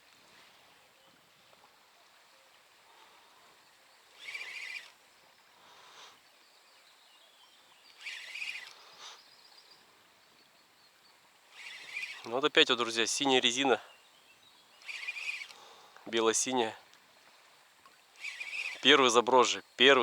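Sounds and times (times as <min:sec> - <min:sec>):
bird calling: 0:04.0 - 0:16.8, 0:18.2 - 0:20.0.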